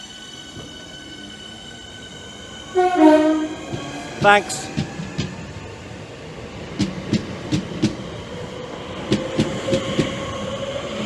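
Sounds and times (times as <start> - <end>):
train wheels clicking over rail joints: 6.7 - 8.2, 8.9 - 10.3.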